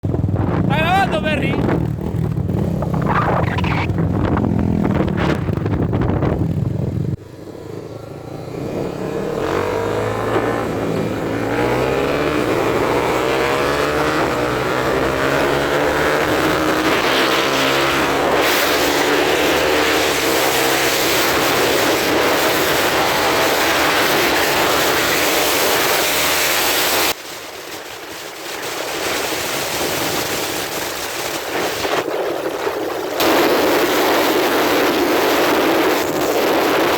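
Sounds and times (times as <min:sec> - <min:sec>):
wind noise: 0:00.0 - 0:07.2, 0:27.1 - 0:36.9
motorcycles accelerating hard: 0:00.1 - 0:36.9.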